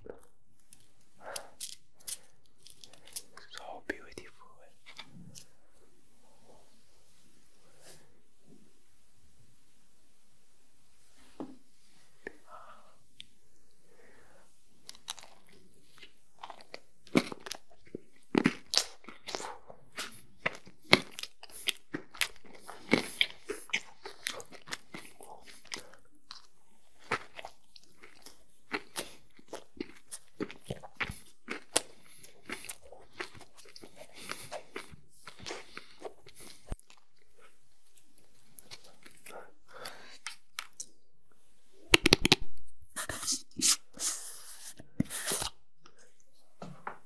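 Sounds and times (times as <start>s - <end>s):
chewing cupcake with sharp crunches: 14.8s - 41.0s.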